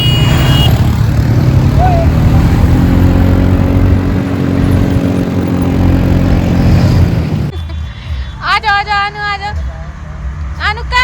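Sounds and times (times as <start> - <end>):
vehicle engine running loudly: 0.0 - 7.5.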